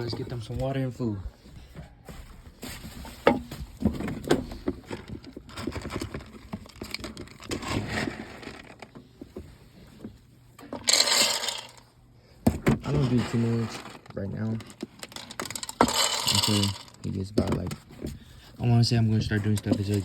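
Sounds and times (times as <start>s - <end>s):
knocks and scrapes of handling: 0.0s - 20.0s.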